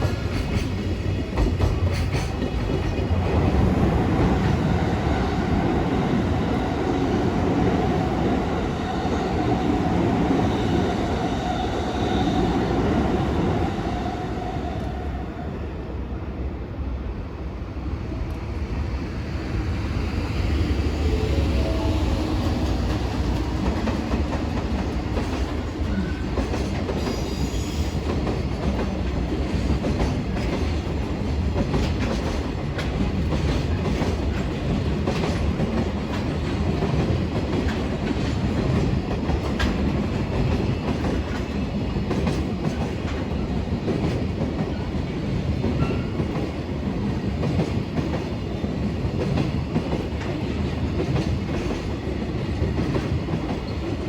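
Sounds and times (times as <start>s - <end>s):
freight train wheels clattering: 0.0s - 4.9s, 22.3s - 54.0s.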